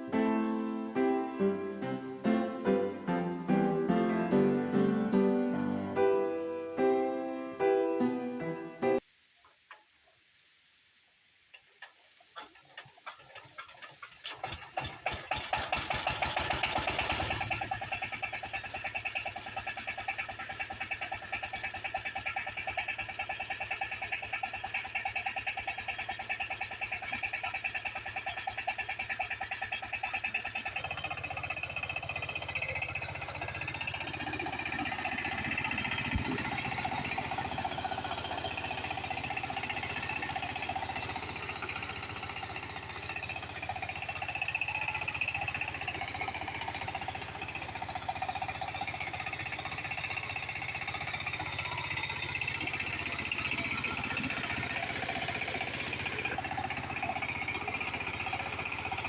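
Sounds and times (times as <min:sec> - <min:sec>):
diesel engine running: 0:00.0 - 0:09.0, 0:12.5 - 0:59.0
deeper rumble: 0:30.4 - 0:58.8.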